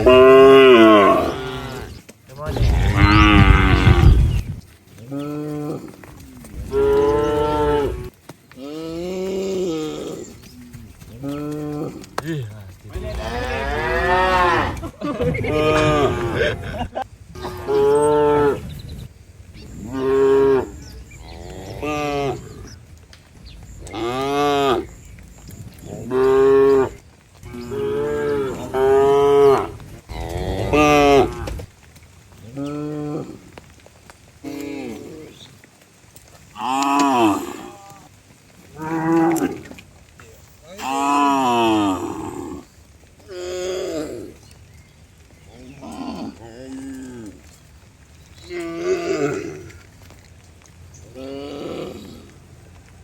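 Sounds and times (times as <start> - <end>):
cattle mooing: 0.0 - 4.6, 5.3 - 10.3, 12.9 - 18.8, 19.6 - 22.8, 25.8 - 31.6.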